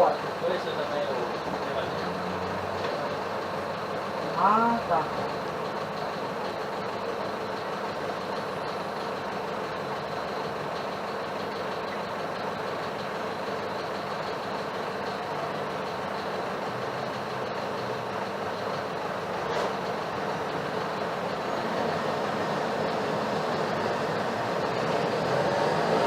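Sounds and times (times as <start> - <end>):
bus cabin noise: 0.0 - 26.0
bus engine running: 0.0 - 26.0.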